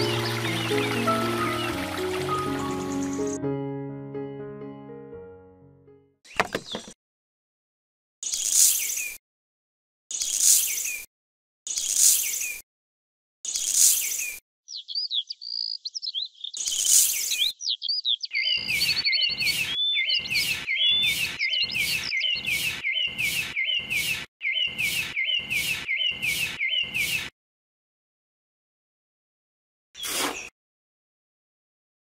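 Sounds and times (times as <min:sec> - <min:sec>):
birds chirping: 0:00.0 - 0:03.4, 0:06.3 - 0:07.0, 0:14.2 - 0:27.3
trowel scraping and patting sand: 0:16.6 - 0:17.4, 0:30.0 - 0:30.5
sand pouring from trowel: 0:30.0 - 0:30.5.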